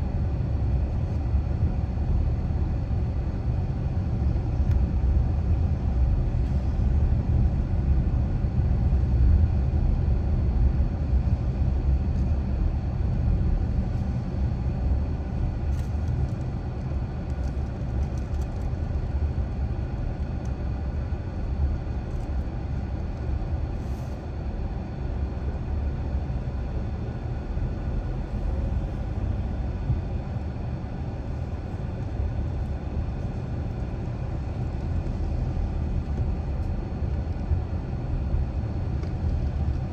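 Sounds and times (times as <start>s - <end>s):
car engine rumble: 25.2s - 36.4s.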